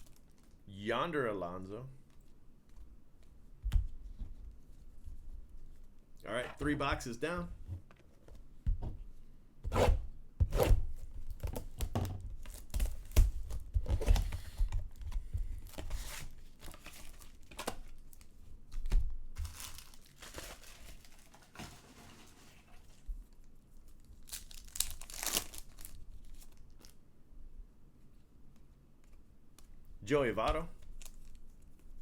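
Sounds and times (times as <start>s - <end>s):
plastic wrapping tearing and crinkling: 0.0s - 0.6s, 11.3s - 13.7s, 19.4s - 22.5s, 23.3s - 27.0s, 30.8s - 31.8s.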